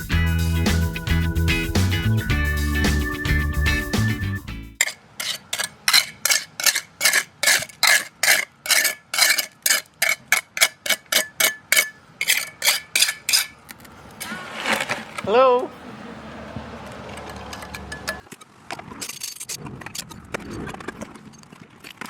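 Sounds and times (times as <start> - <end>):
tool scraping wet concrete: 4.8 - 15.6.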